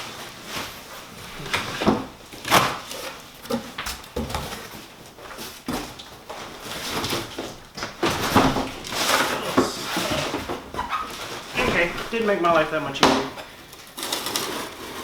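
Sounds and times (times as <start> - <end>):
packing rustling: 4.4 - 15.0
cardboard box scraping: 8.0 - 12.6, 14.0 - 15.0.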